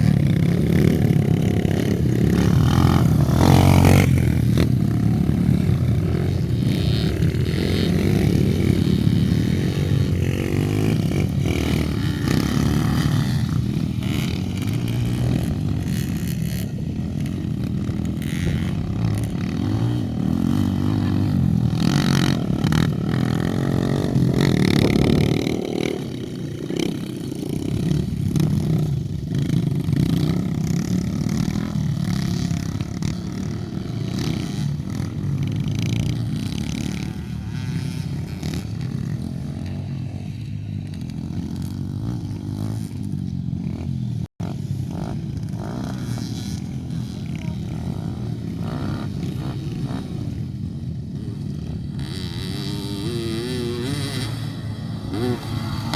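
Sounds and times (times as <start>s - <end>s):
dirt bike engines revving: 0.0s - 55.9s.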